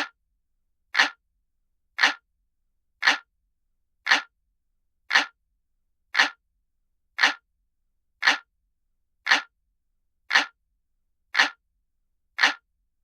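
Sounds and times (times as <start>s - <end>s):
clock ticking: 1.0s - 1.2s, 2.0s - 2.2s, 3.0s - 3.3s, 4.1s - 4.3s, 5.1s - 5.4s, 6.2s - 6.4s, 7.2s - 7.4s, 8.2s - 8.5s, 9.2s - 9.5s, 10.3s - 10.6s, 11.3s - 11.6s, 12.4s - 12.6s.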